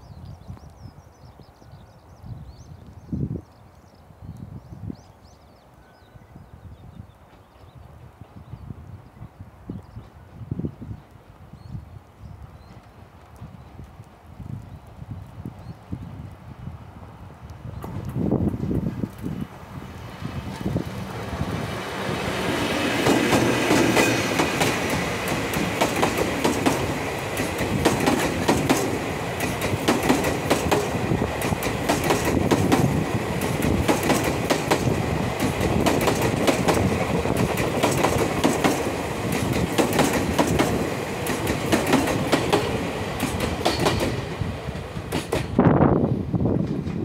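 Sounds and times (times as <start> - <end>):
electric locomotive passing: 17.2 - 47.0
wheels clacking over rail joints: 20.5 - 45.6.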